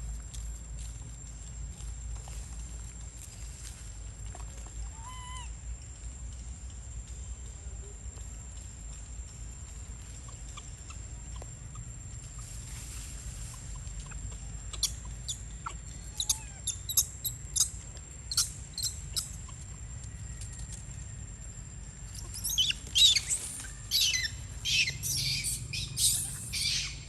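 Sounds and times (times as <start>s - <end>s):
birds chirping: 13.5s - 20.7s, 21.8s - 27.0s.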